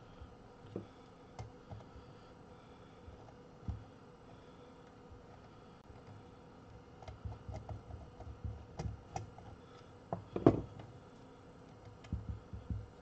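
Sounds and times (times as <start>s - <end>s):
clicks and taps of wires and tools: 7.0s - 10.9s.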